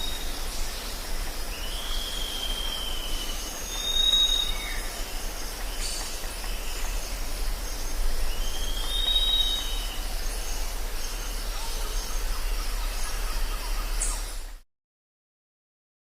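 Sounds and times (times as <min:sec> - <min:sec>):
drawn-out whistled call: 0:00.0 - 0:00.6, 0:01.6 - 0:06.9, 0:08.3 - 0:14.5
hiss of background calls: 0:00.0 - 0:14.6
low hum: 0:04.7 - 0:14.6.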